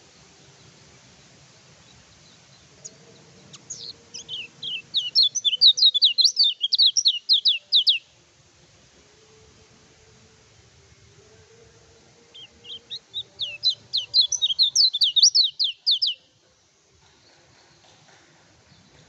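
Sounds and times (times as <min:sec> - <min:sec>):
songbird singing high notes: 0:02.2 - 0:08.1, 0:12.3 - 0:16.3.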